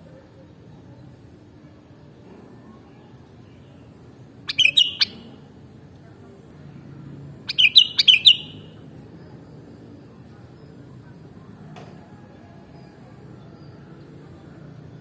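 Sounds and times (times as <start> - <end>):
bird singing bubbling notes: 4.5 - 5.2, 7.5 - 8.7.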